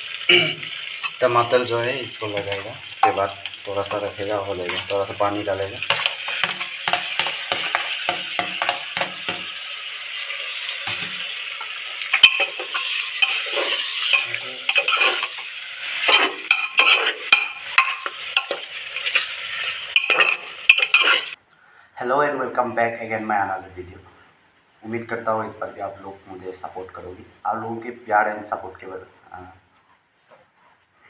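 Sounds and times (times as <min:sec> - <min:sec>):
meat sizzling in a pan: 0:00.0 - 0:21.4
utensil scraping a pan: 0:05.8 - 0:09.5, 0:10.9 - 0:21.4.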